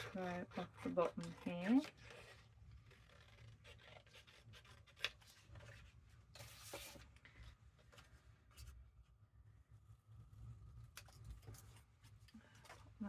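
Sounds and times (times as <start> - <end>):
paper rustling: 0.0 - 8.8.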